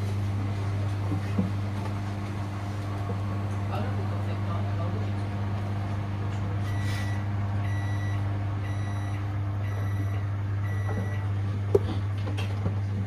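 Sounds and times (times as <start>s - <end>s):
steady low hum: 0.0s - 13.0s
washing machine beeping: 6.6s - 12.0s.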